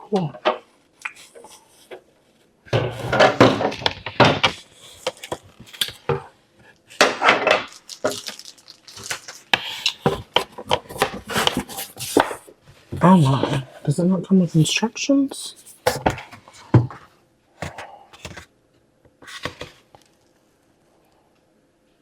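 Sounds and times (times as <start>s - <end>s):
hard plastic pieces clattering: 7.0s - 12.4s.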